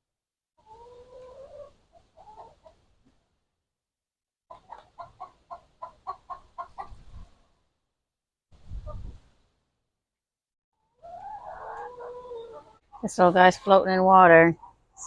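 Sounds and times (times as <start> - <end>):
chicken calling and clucking: 0.6 - 3.2, 4.5 - 7.6, 10.8 - 13.7, 14.5 - 15.0.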